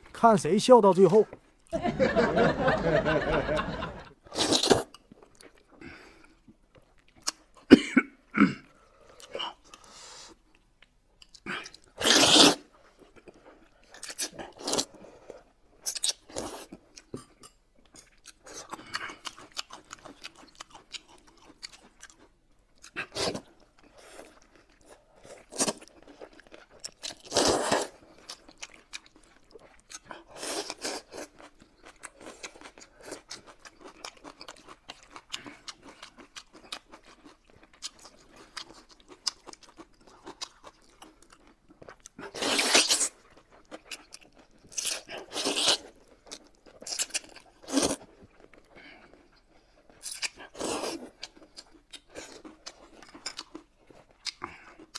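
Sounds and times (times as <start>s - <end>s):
noodles being slurped: 11.9s - 12.7s, 42.2s - 43.2s.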